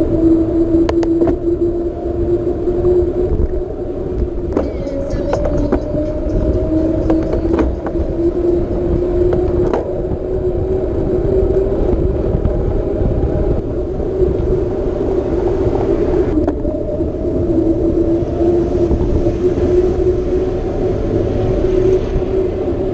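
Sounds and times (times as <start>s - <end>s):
low wind rumble: 0.0s - 22.9s
bicycle tyre hum: 1.4s - 22.9s.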